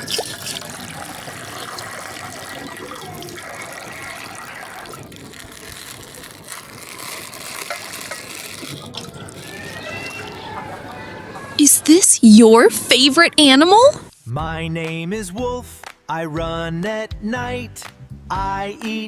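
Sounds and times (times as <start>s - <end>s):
water pouring: 0.0s - 10.2s.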